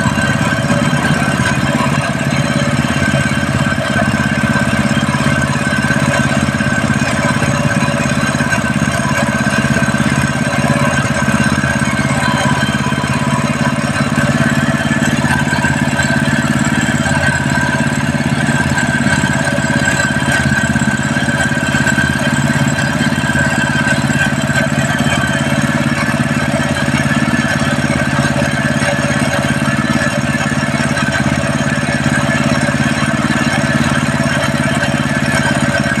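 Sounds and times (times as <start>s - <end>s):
single-cylinder engine running: 0.0s - 36.0s.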